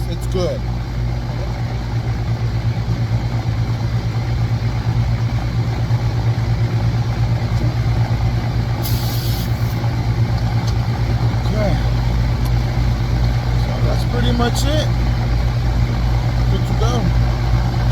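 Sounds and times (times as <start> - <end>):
air conditioner compressor hum: 0.0 - 17.9
fan rushing: 0.0 - 17.9
brief hiss: 8.8 - 9.8.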